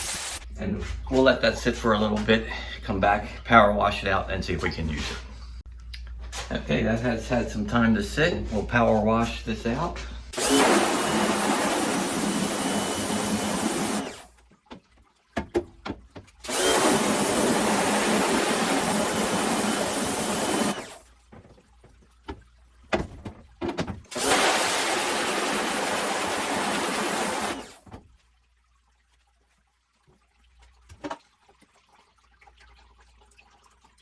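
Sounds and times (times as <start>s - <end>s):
pressure washer spraying water: 0.0s - 0.4s, 10.4s - 14.3s, 16.5s - 21.0s, 24.1s - 27.8s.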